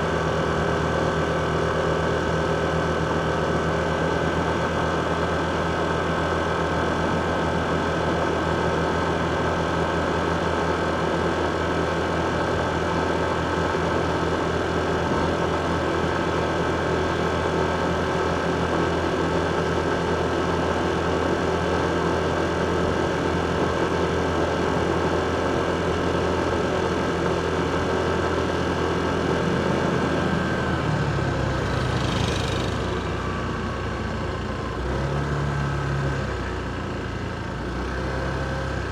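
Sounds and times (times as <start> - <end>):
motorcycle engine idling: 12.1 - 34.7.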